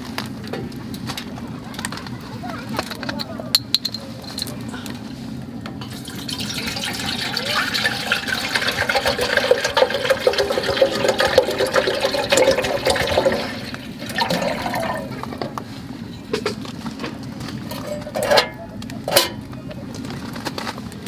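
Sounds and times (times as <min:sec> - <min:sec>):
water pouring and splashing: 0:05.8 - 0:15.9.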